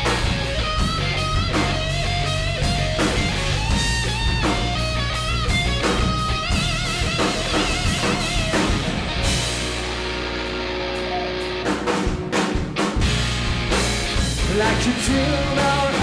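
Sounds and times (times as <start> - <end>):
drum beat: 0.0 - 10.0
bass: 0.0 - 16.0
electric guitar lead: 0.0 - 16.0.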